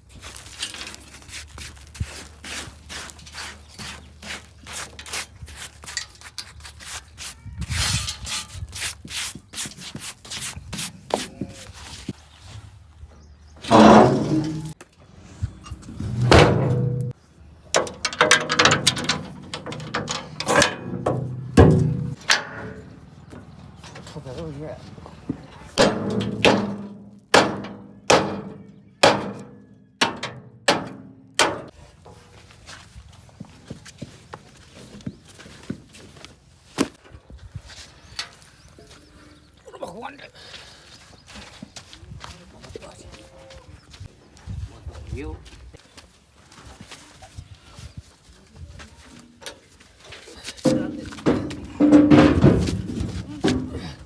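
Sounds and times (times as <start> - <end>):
rubbing and scraping strokes: 0.1 - 12.6
hard ringing knocks: 17.8 - 22.9, 25.8 - 31.7.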